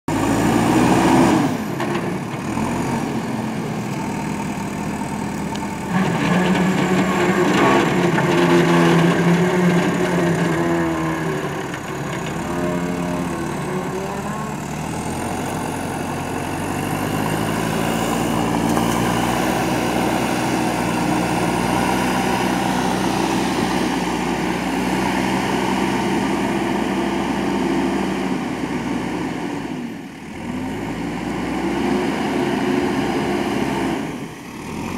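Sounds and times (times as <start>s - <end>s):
diesel engine under load: 0.1s - 34.9s.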